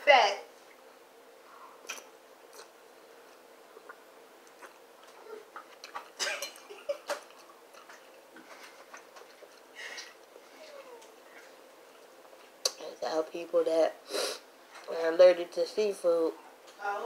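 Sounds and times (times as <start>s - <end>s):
wet mouth clicks: 1.8s - 2.8s, 3.8s - 4.8s
person chewing noodles: 1.8s - 6.5s, 7.2s - 10.4s.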